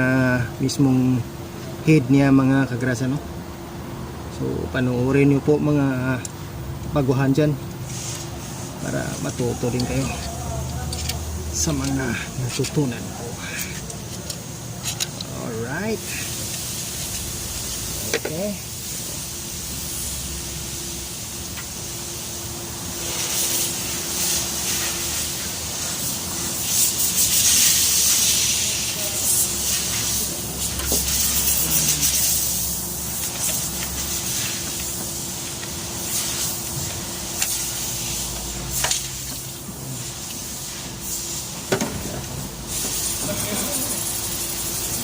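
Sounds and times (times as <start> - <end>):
hissing rush: 15.4 - 36.6.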